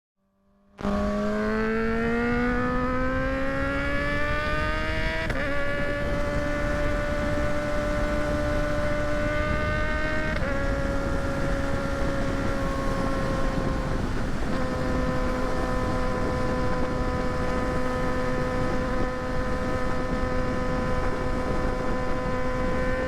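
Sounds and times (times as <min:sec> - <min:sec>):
motorcycle engine accelerating: 0:00.4 - 0:23.0
wind noise rushing: 0:00.9 - 0:23.0.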